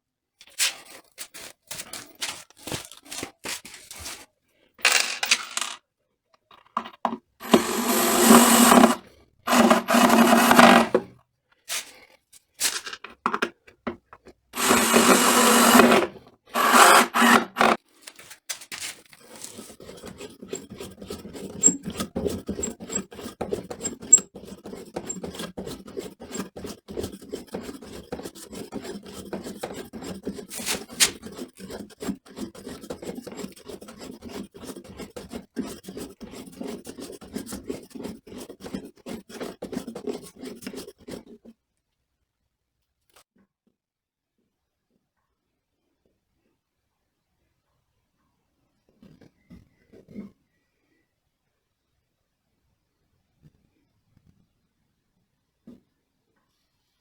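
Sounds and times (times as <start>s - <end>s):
hand tool rasping: 7.4s - 11.1s, 14.6s - 17.8s, 19.1s - 41.3s
quiet scraping: 7.4s - 11.1s.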